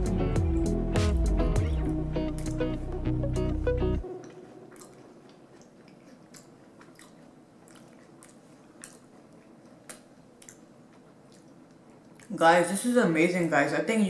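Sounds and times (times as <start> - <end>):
background music: 0.0 - 5.0
person chewing a cookie: 4.0 - 12.3
mouth clicks: 4.1 - 12.3.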